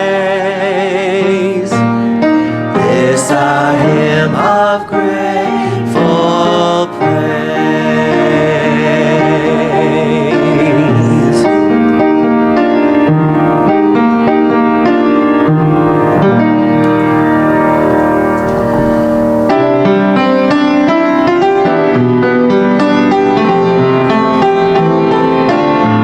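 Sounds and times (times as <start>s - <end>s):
piano playing hymn chords: 0.0s - 26.0s
choir holding note with vibrato: 2.8s - 6.6s, 15.4s - 19.5s.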